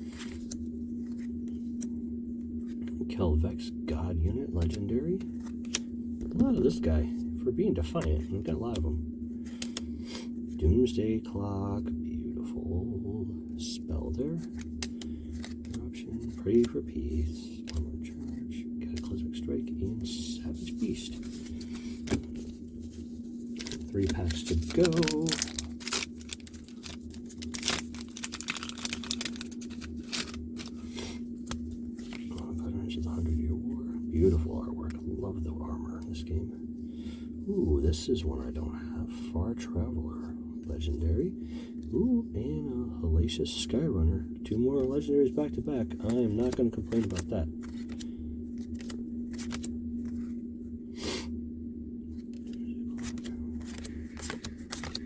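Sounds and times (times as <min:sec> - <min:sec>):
card rustle: 0:00.0 - 0:03.0, 0:04.5 - 0:07.2, 0:07.8 - 0:10.4, 0:14.3 - 0:33.4, 0:44.8 - 0:50.4, 0:52.1 - 0:55.0
low hum: 0:00.0 - 0:55.0
cards clicking and sliding: 0:09.4 - 0:10.2, 0:14.4 - 0:16.8, 0:20.7 - 0:22.6, 0:23.6 - 0:32.4, 0:46.0 - 0:50.3, 0:52.2 - 0:55.0
foil wrapper crinkling: 0:21.2 - 0:32.5, 0:45.9 - 0:50.3, 0:52.2 - 0:55.0.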